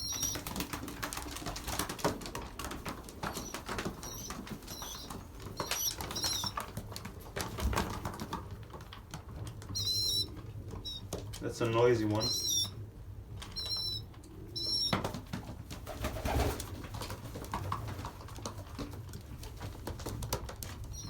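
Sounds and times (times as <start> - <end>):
young pigeons squeaking: 0.0 - 8.0, 9.4 - 15.2, 20.8 - 21.0
birds pecking at trays: 0.0 - 21.0.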